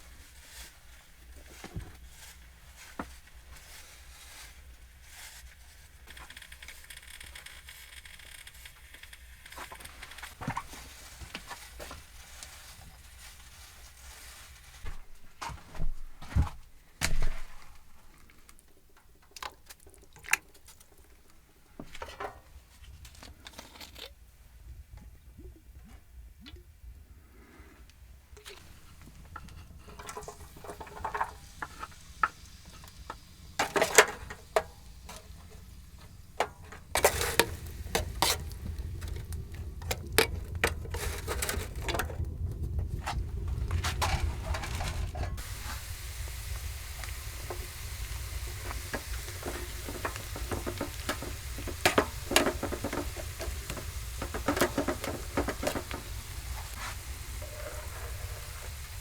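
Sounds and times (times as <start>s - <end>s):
food sizzling in a pan: 28.5s - 42.2s, 42.9s - 59.0s
utensils clicking and knocking: 28.5s - 42.2s, 44.0s - 58.4s
stirring: 28.5s - 42.4s, 43.5s - 59.0s.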